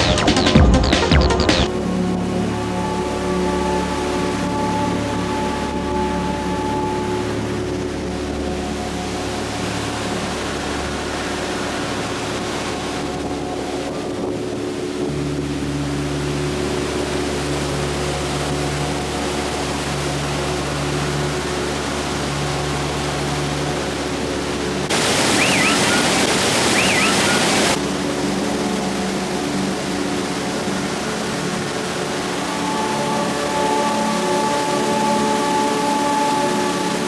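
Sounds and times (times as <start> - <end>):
held chord-like drone tones: 1.7 - 37.0
waterfall rushing: 24.8 - 28.4
short high calls: 24.9 - 27.8.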